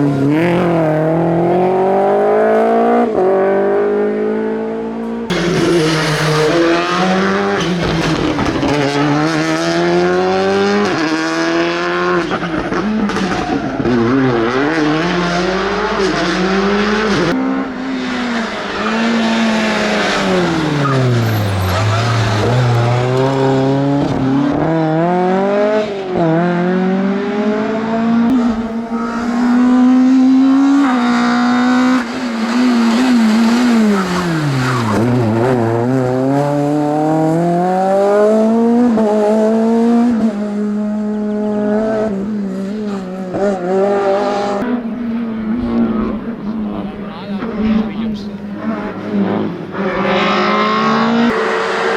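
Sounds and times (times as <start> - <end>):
rally car engine revving: 0.0 - 51.9.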